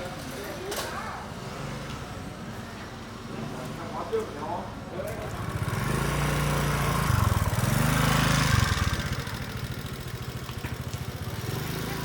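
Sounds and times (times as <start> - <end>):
small engine revving: 5.2 - 12.0.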